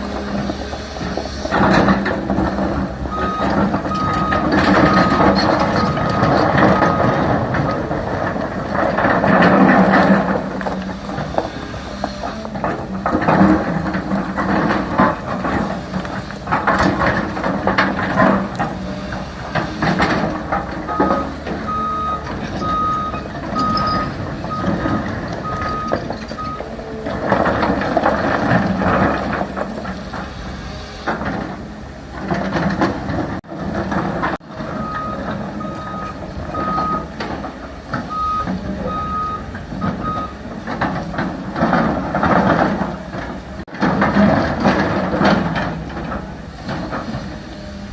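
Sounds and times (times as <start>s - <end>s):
excavator diesel engine: 0.0s - 47.9s
back-up alarm beeping: 3.0s - 7.3s, 20.9s - 27.0s, 34.8s - 37.2s, 38.1s - 40.4s.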